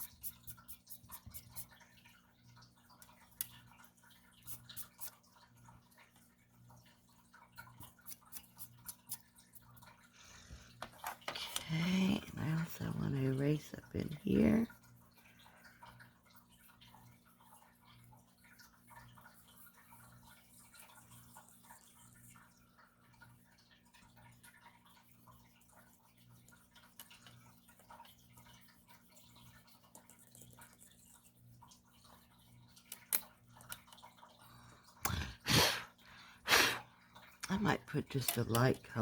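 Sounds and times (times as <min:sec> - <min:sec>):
eraser rubbing on film: 0:00.0 - 0:01.7, 0:04.5 - 0:05.1.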